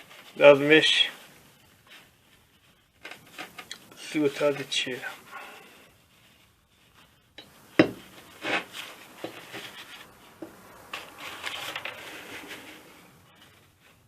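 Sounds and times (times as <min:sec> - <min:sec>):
cloth rubbing on metal: 0:00.0 - 0:14.0.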